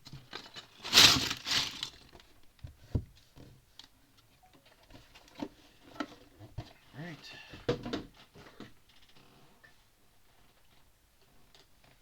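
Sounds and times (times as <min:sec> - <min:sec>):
packaging rustling and rattling: 0:00.2 - 0:02.3.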